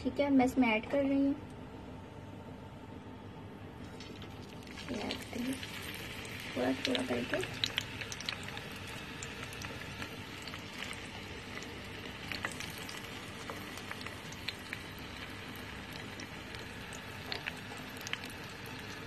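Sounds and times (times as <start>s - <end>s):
eggplant frying in oil: 3.9s - 19.0s.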